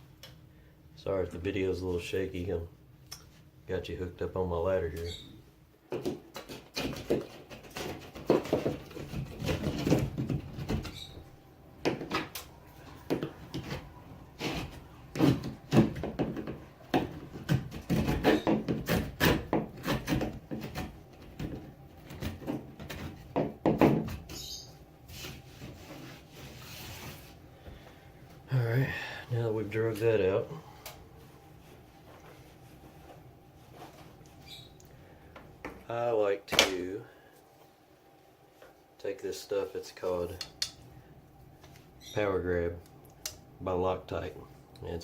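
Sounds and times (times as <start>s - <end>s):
tool scraping drywall: 6.0s - 10.9s, 13.1s - 24.4s.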